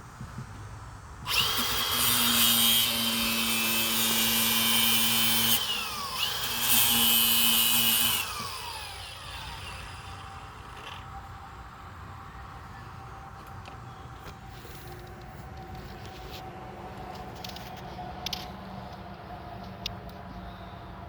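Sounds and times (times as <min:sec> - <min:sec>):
power tool motor whine: 0:01.3 - 0:11.3.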